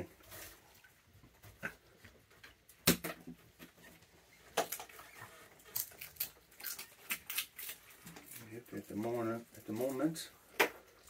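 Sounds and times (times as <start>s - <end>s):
small objects clicking and knocking: 4.4s - 8.5s.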